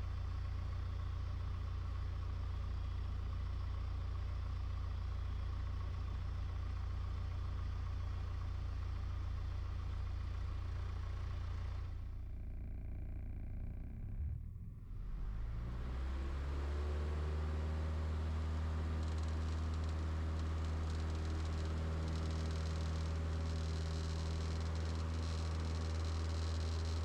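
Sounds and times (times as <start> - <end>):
light aircraft engine running: 10.1 - 27.0.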